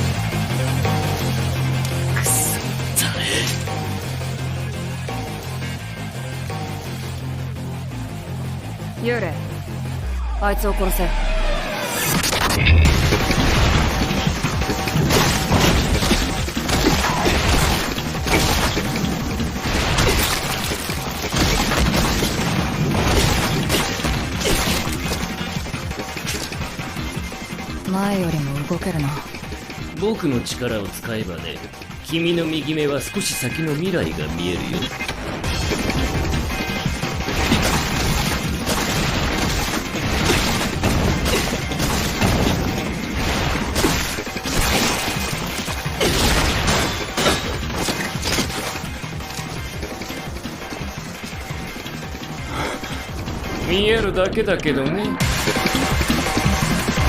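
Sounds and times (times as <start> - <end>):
crashes and impacts: 11.8 - 27.0, 34.8 - 50.3
crashes and heavy booming impacts: 12.1 - 27.0.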